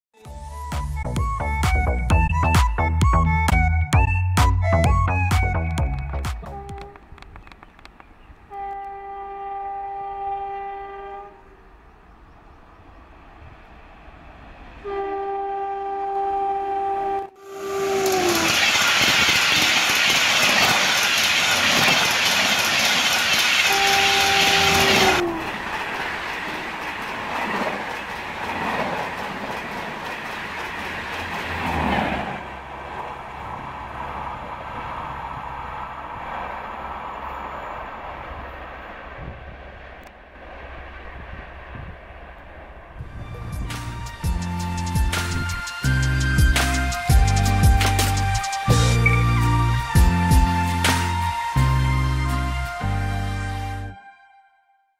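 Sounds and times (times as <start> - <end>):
train rumble: 0.3 - 53.3
train rushing past: 4.0 - 53.3
two-tone train horn: 6.4 - 7.1, 8.5 - 11.7, 14.8 - 18.6, 23.6 - 25.6
wheels clattering over rail joints: 18.1 - 35.2.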